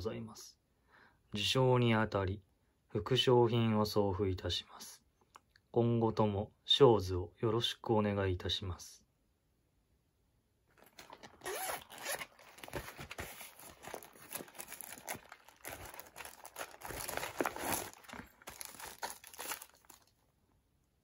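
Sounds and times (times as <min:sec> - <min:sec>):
packing material ripping and crinkling: 0:10.8 - 0:20.2.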